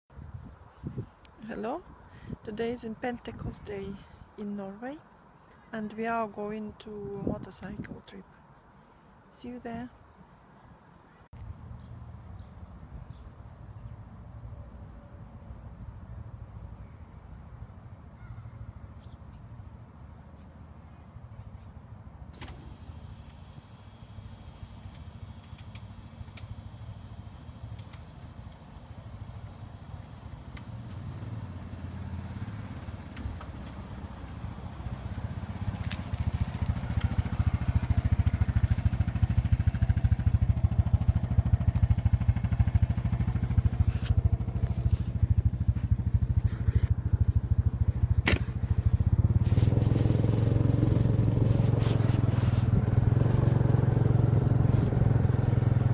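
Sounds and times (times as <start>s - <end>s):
scattered clicks: 24.8s - 26.6s
motorcycle engine running: 30.0s - 55.9s.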